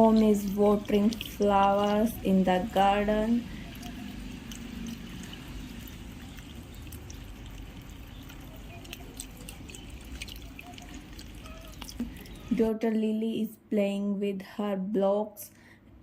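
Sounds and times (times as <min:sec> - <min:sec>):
small water drips: 0:00.0 - 0:12.6
water pouring from watering can: 0:00.0 - 0:12.6.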